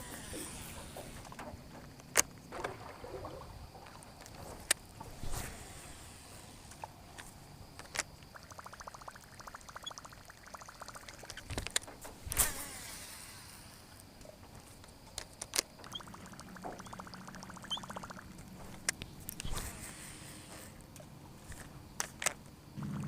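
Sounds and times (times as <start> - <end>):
fishing reel ticking: 7.8 - 13.8.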